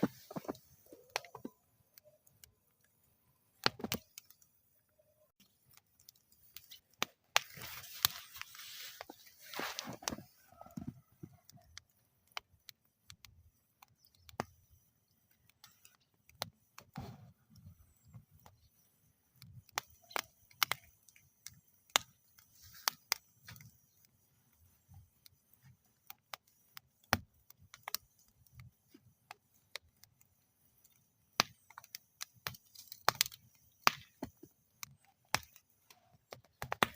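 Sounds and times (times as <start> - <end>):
fire hissing: 0.0 - 1.4, 6.3 - 11.2
wood fire crackling: 0.0 - 36.9.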